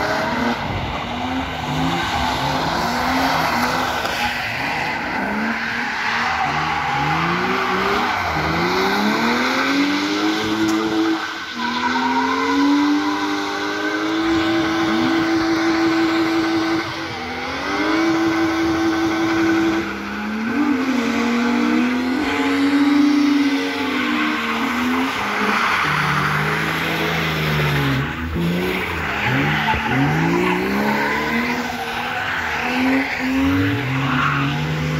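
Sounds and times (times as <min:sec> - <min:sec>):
car engines revving hard: 0:00.0 - 0:34.9
tyres squealing: 0:23.9 - 0:34.6.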